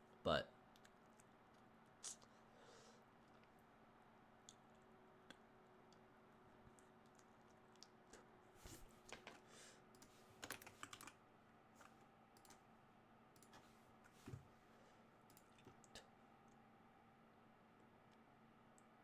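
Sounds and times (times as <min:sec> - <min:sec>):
faint keyboard typing: 0:04.4 - 0:11.2, 0:11.8 - 0:14.5, 0:15.2 - 0:16.7.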